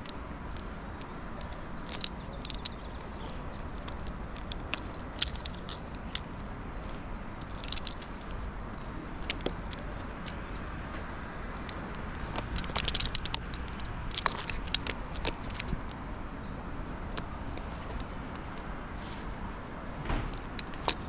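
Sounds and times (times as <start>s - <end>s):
low background noise: 0.0s - 21.0s
metallic clinks and jingles: 0.4s - 10.7s, 11.7s - 15.7s.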